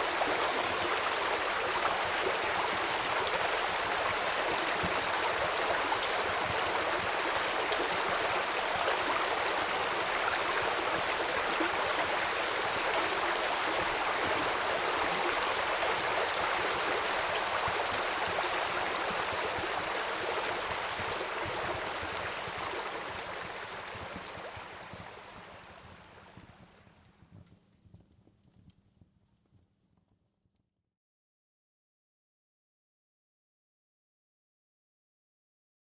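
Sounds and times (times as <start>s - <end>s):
river flowing and rushing: 0.0s - 25.0s.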